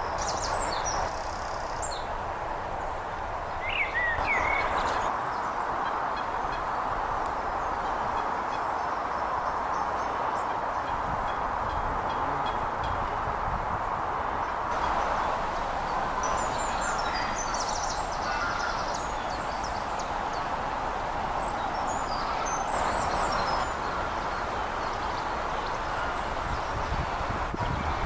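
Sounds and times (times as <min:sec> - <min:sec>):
songbirds chirping and trilling: 0:00.0 - 0:13.2, 0:14.4 - 0:28.0
steady rushing noise: 0:10.4 - 0:28.0.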